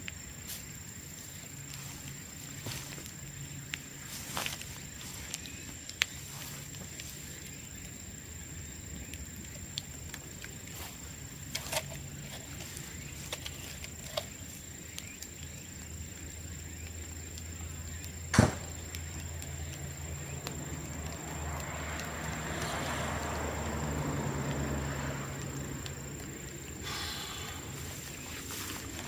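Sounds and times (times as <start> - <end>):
bonfire crackling and popping: 0.0 - 29.0
fire hissing: 0.0 - 29.0
bamboo bursting with a bang: 18.3 - 19.1.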